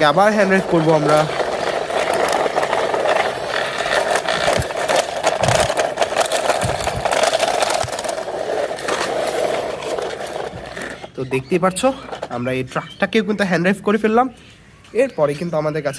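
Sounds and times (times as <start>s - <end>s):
toy truck wheels rattling: 0.0s - 13.0s.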